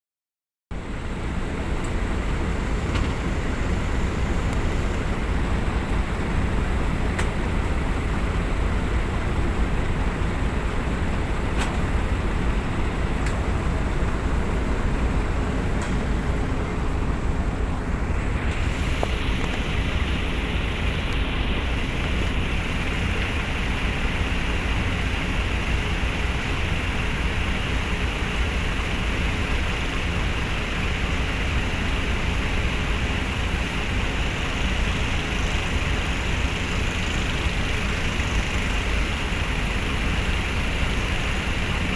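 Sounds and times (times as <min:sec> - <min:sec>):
low engine rumble: 0:00.7 - 0:41.9
constant hiss: 0:00.8 - 0:24.6.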